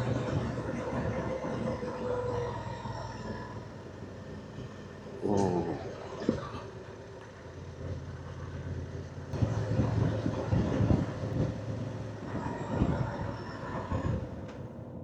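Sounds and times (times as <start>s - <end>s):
wind noise: 9.4s - 14.6s.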